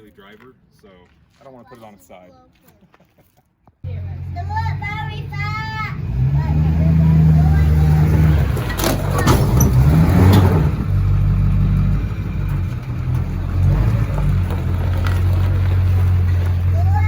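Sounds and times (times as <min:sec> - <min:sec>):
diesel pickup engine revving: 0:03.9 - 0:17.0.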